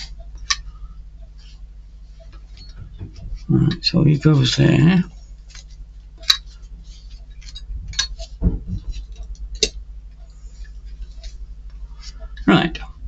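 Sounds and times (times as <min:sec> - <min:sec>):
steady low hum: 0:00.0 - 0:13.0
small parts clicking and tapping: 0:05.1 - 0:11.3
dull knock: 0:08.4 - 0:08.9.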